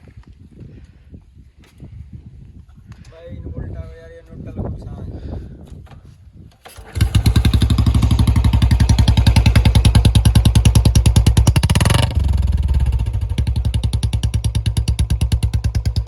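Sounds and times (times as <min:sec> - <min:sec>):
motorcycle engine starting and idling: 0:05.8 - 0:16.0.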